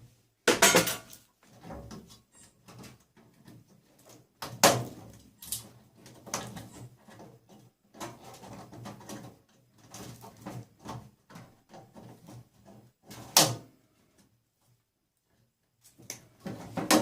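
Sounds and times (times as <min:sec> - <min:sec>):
scrap parts knocking and clattering: 0:00.5 - 0:03.7, 0:16.4 - 0:17.0.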